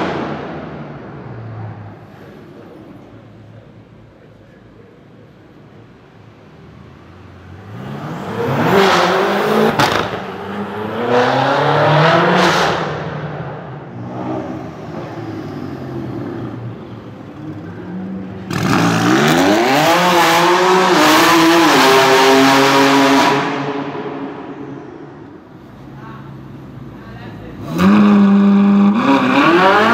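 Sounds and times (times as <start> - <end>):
car engines accelerating hard: 6.6 - 29.9.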